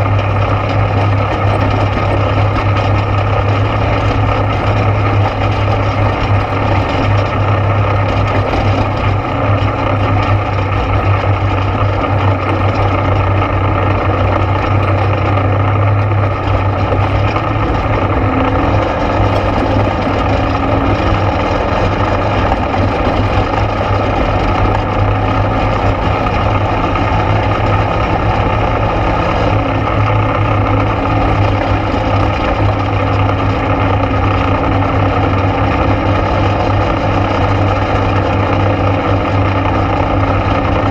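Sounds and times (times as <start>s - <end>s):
atv engine droning: 0.0s - 40.9s.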